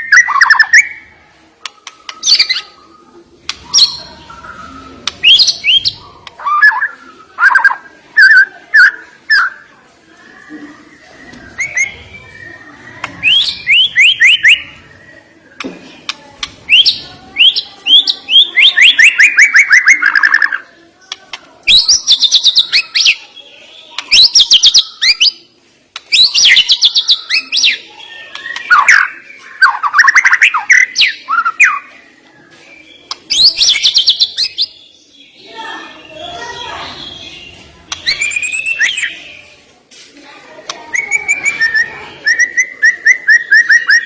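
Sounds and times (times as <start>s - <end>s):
bird singing whistled trills: 11.1s - 15.4s, 37.0s - 39.2s.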